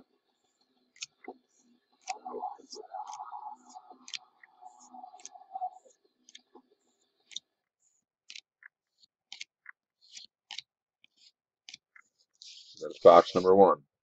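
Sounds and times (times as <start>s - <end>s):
trading cards flipped through: 9.3s - 11.8s.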